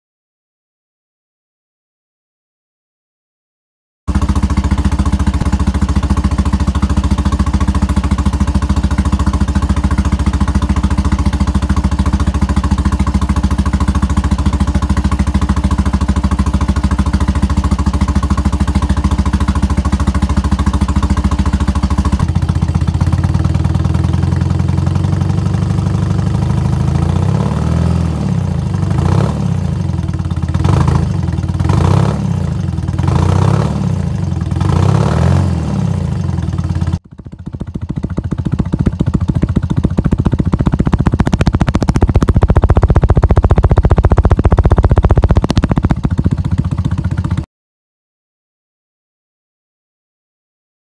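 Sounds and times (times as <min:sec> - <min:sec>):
motorcycle engine idling: 0:04.1 - 0:47.5
motorcycle engine revving: 0:04.1 - 0:47.5.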